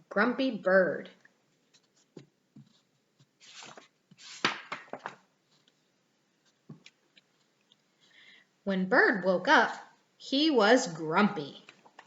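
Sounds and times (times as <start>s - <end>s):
paper rustling: 1.6s - 7.6s
soft knocks of book handling: 1.7s - 7.5s.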